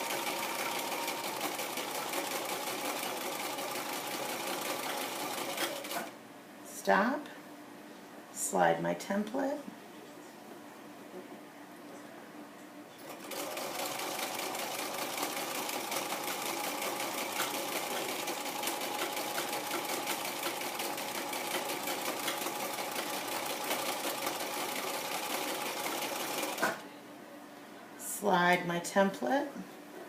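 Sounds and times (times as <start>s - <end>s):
sewing machine stitching: 0.0s - 6.1s, 13.0s - 26.8s.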